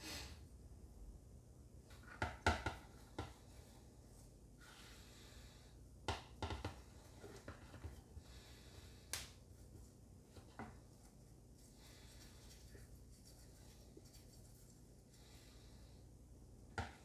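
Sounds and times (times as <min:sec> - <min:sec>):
faint low hum: 0:06.9 - 0:17.0.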